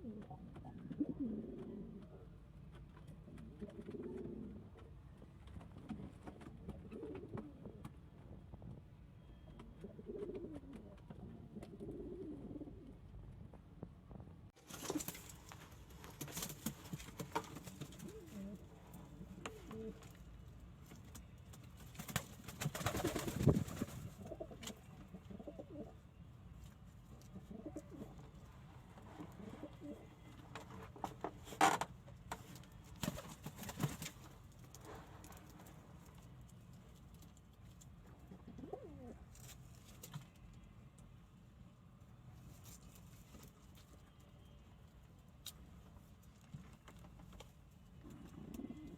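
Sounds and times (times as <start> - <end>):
pigeons cooing: 0.0 - 2.2, 3.3 - 4.8, 6.6 - 7.8, 9.8 - 13.0, 17.8 - 20.1, 24.1 - 26.0, 27.4 - 28.2, 29.3 - 30.1, 38.4 - 39.2, 48.0 - 48.9.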